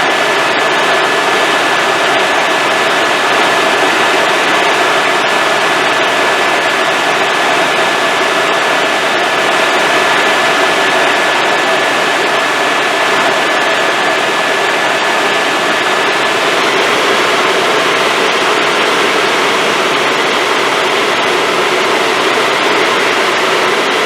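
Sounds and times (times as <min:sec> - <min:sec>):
helicopter engine and rotor noise: 0:00.0 - 0:24.0
thin high whine: 0:00.0 - 0:24.0.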